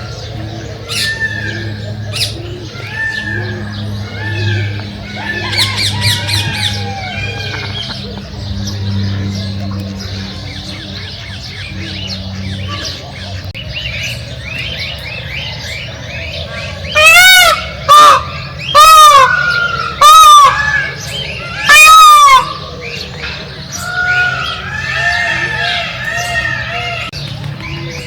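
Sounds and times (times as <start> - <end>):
small birds chirping: 0.0 - 17.0
large bird honking calls: 16.8 - 27.2.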